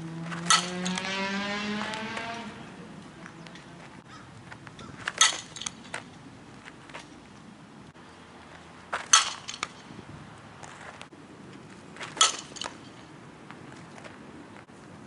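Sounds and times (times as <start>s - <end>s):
vehicle engine accelerating past: 0.0s - 4.0s.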